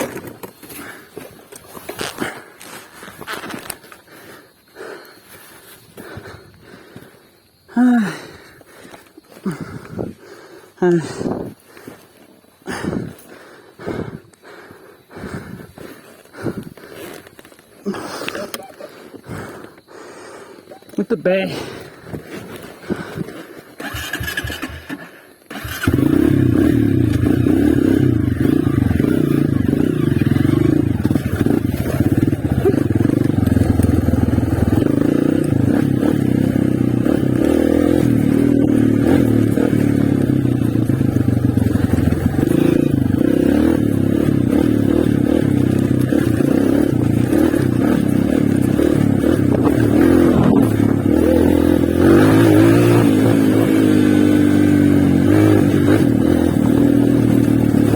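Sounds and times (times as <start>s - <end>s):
motorbike engine running: 22.9s - 57.9s.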